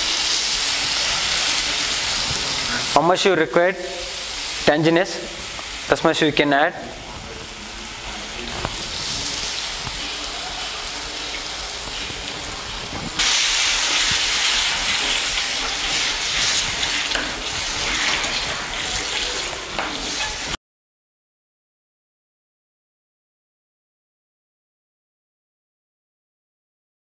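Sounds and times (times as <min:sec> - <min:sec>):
masala sizzling in a pot: 0:00.0 - 0:20.6
spatula stirring and scraping: 0:13.2 - 0:20.6.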